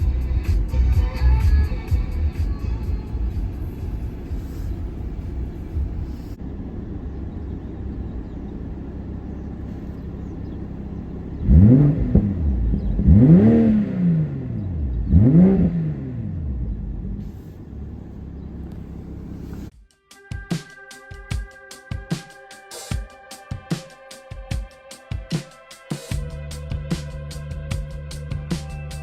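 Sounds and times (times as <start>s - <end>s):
car engine idling: 0.0s - 19.7s
car engine revving: 0.0s - 19.7s.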